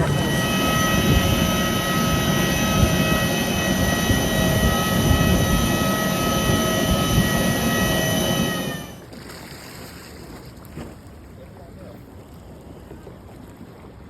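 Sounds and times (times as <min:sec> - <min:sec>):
high whining tones: 0:00.0 - 0:09.0
jet engine rumble: 0:00.0 - 0:09.0.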